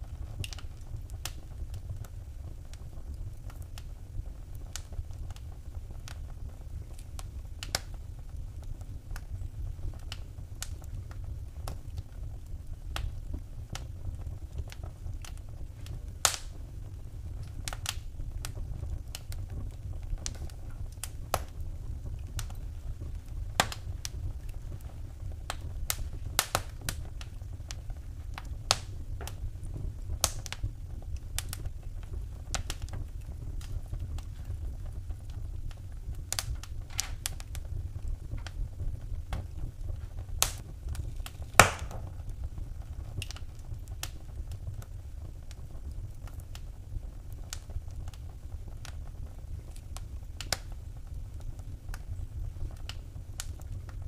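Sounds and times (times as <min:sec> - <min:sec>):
low rumble of flames: 0:00.0 - 0:54.0
wood fire crackling and popping: 0:00.0 - 0:54.0.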